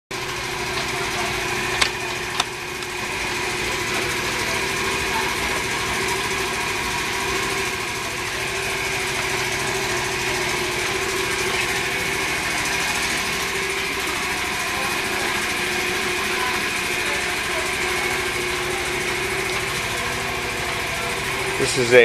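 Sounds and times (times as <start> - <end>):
motorcycle engine idling: 0.1 - 22.0.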